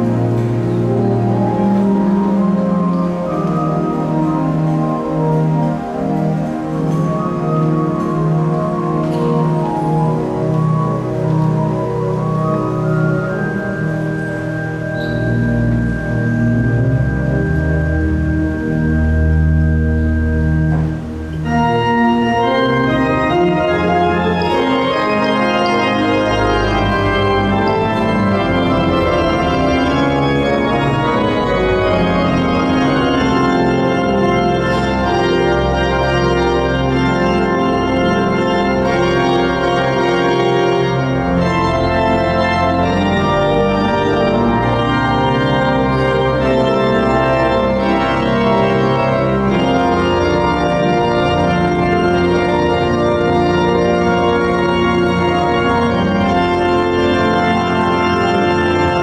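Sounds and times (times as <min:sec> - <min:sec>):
pipe organ playing chords: 0:00.0 - 0:59.0.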